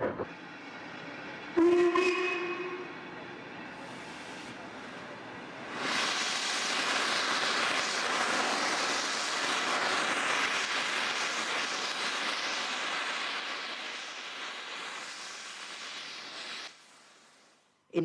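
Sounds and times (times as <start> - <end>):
locomotive steam hissing: 0.5 - 17.6.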